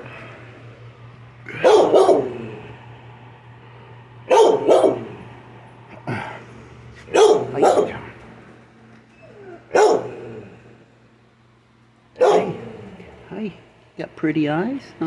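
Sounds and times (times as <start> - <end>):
dog barking with echo: 1.5 - 2.6, 4.3 - 5.2, 7.1 - 8.1, 9.7 - 10.3, 12.2 - 12.7.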